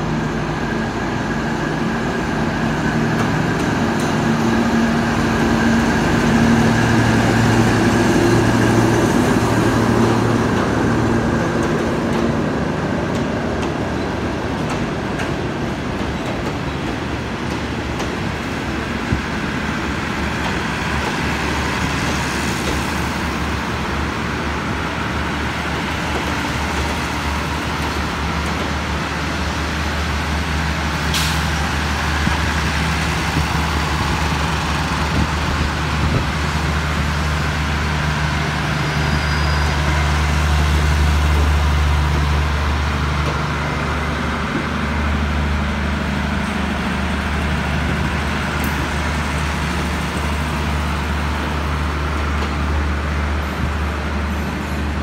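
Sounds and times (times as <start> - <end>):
low diesel drone: 0.0 - 15.9, 16.7 - 55.0
train coaches rolling on track: 0.0 - 55.0.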